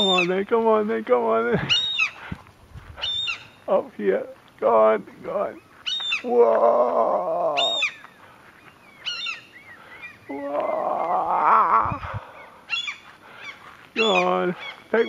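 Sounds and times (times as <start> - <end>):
gulls alarm cries: 0.0 - 0.5, 1.6 - 2.2, 3.0 - 3.7, 5.3 - 15.0.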